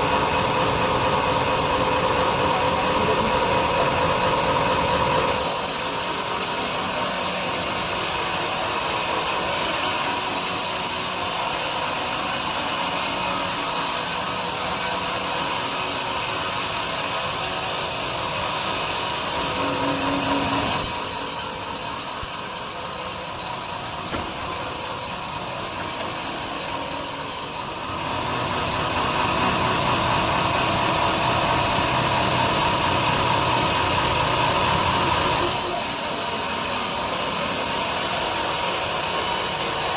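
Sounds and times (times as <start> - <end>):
bandsaw cutting through log: 5.2 - 28.0, 35.2 - 39.9.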